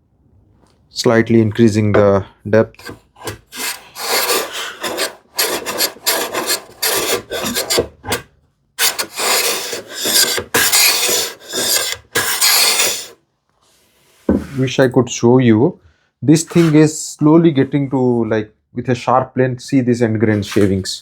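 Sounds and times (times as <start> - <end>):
hand plane hissing across wood: 2.8 - 7.9, 8.8 - 14.7, 16.5 - 16.8.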